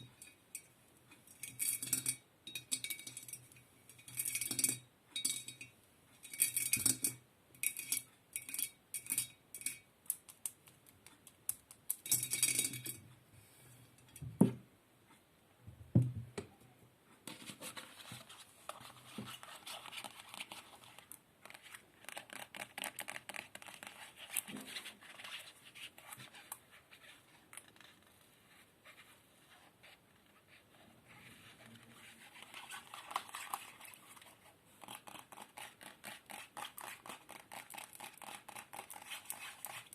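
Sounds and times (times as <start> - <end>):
scratching on hard objects: 17.3 - 39.9.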